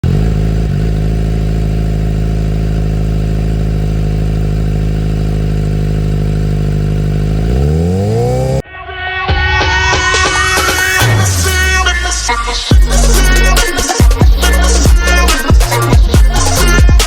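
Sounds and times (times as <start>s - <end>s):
motorcycle engine idling and revving: 0.0s - 8.6s, 10.7s - 17.0s.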